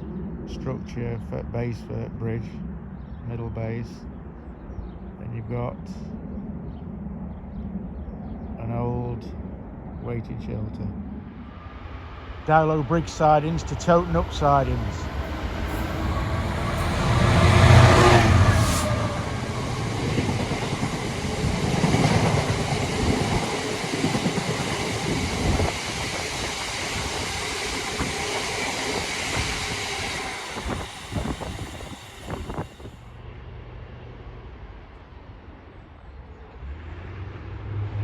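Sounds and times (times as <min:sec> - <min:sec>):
locomotive engine: 0:11.3 - 0:34.6.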